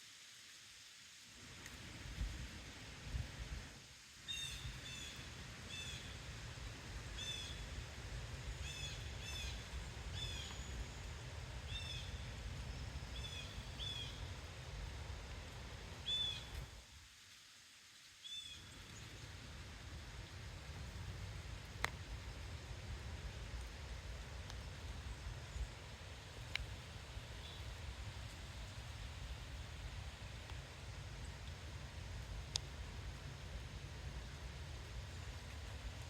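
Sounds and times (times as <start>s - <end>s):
wind rumble on microphone: 1.4s - 3.8s
songbird chip calls: 4.2s - 6.2s, 7.2s - 7.7s, 8.5s - 14.3s, 16.0s - 16.6s, 18.2s - 19.2s.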